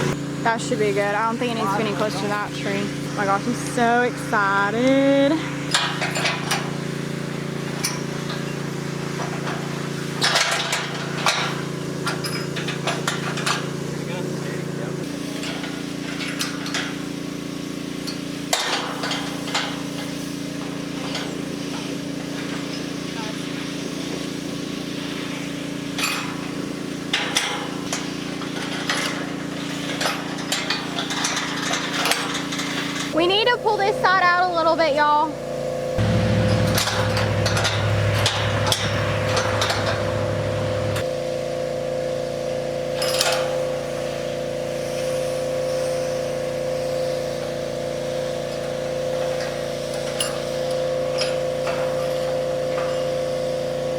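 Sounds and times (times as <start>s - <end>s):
steady engine hum: 0.0s - 16.2s, 31.8s - 50.2s
metal panels clinking and clattering: 27.2s - 33.2s
metal panels clanking: 36.0s - 41.1s.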